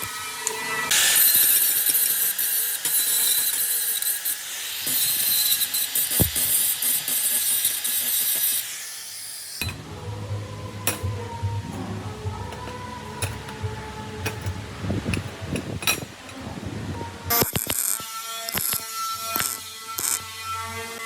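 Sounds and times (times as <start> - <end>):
power tool cutting metal: 0.0 - 9.8, 10.8 - 11.1, 12.5 - 21.0
low hum: 9.6 - 17.3.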